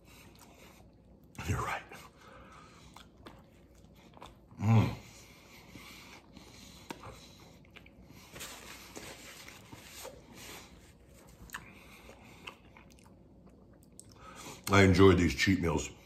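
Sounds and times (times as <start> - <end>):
person chewing food: 0.0 - 1.4, 2.2 - 14.4.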